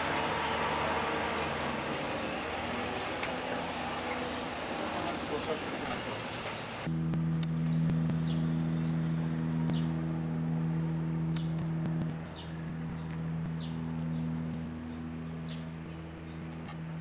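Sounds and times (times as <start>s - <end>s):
steady low hum: 6.8s - 17.0s
small birds chirping: 12.2s - 16.7s.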